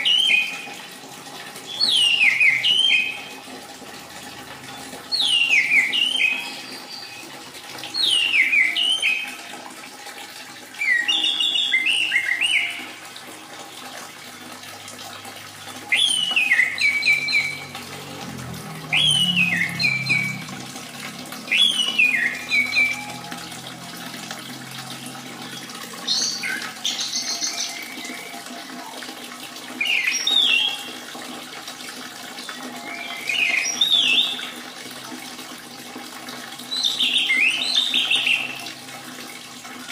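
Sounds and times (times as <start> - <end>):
running water trickling: 0.0 - 39.9
thrush whistled song: 1.6 - 3.3, 5.1 - 7.3, 7.9 - 9.5, 10.8 - 13.0, 15.9 - 17.7, 18.9 - 20.5, 21.4 - 23.3, 32.8 - 34.5, 36.7 - 38.6.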